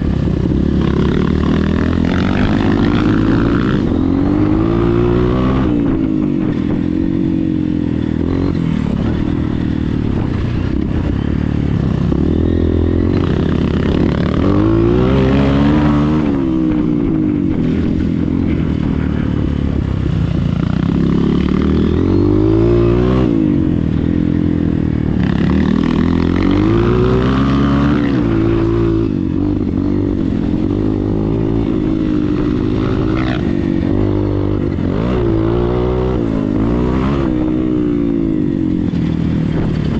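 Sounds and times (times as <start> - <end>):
motocross bike engine revving: 0.0 - 6.0, 11.3 - 39.9.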